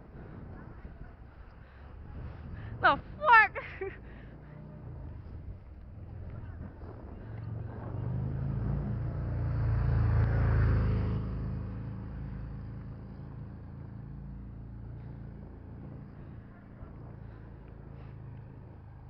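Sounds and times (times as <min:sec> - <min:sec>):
car passing by: 0:04.2 - 0:19.0.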